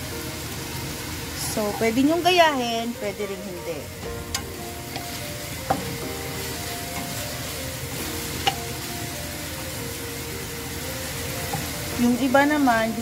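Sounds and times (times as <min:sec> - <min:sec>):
meat sizzling in a pan: 0:00.0 - 0:13.0
spatula knocking against pan: 0:04.3 - 0:06.0.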